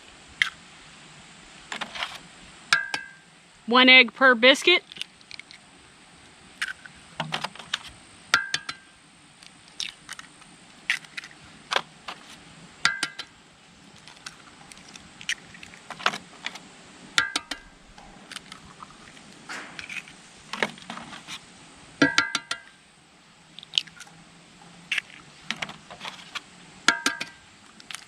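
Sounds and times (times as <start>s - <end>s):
eggs cracking on a skillet: 7.7s - 11.4s, 12.8s - 13.3s, 14.0s - 17.7s.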